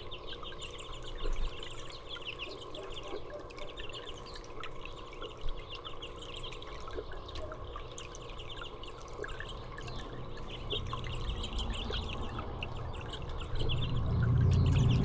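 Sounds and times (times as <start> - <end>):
small birds chirping: 0.0 - 15.0
low rumble: 10.7 - 15.0.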